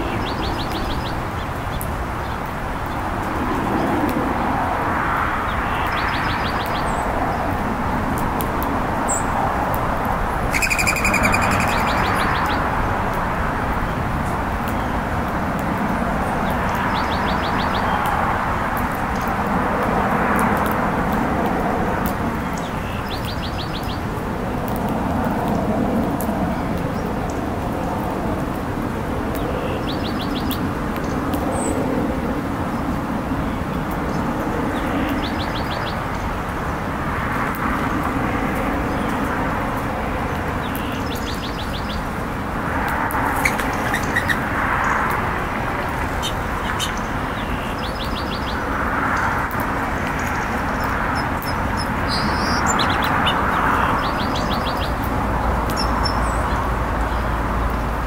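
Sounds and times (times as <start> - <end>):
songbirds trilled chip calls: 10.4 - 12.7, 43.3 - 45.2, 45.8 - 55.1, 55.7 - 57.2.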